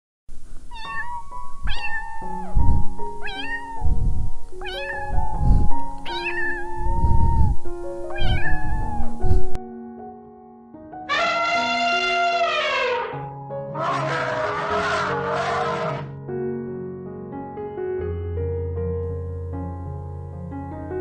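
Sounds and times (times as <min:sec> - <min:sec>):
cat meowing: 0:00.6 - 0:09.6, 0:11.1 - 0:13.2, 0:13.8 - 0:16.1
background music: 0:09.0 - 0:16.8.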